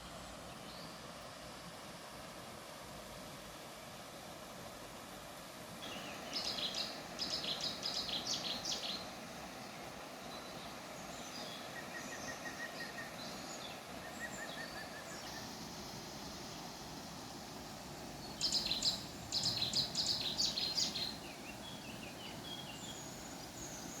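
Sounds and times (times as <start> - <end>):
songbird singing: 5.8 - 16.9, 17.6 - 24.0.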